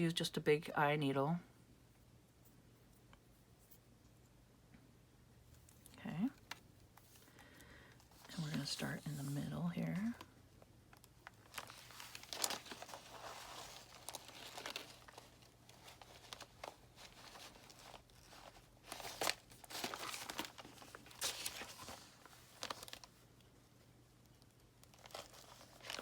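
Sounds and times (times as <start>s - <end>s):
paper rustling and crinkling: 8.1s - 10.2s, 11.0s - 23.2s, 24.3s - 26.0s.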